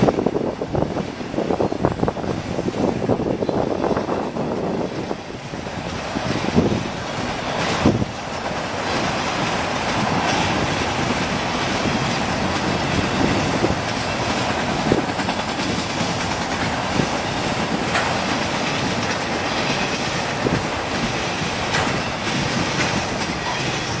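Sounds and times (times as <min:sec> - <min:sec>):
train wheels rumbling on rails: 0:00.0 - 0:24.0
sharp rail clacks: 0:02.2 - 0:24.0.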